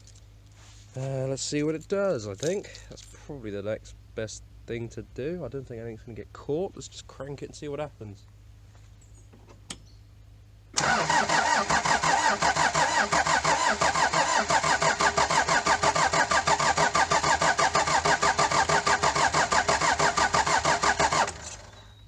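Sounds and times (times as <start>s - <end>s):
starter motor cranking engine: 10.8s - 22.0s.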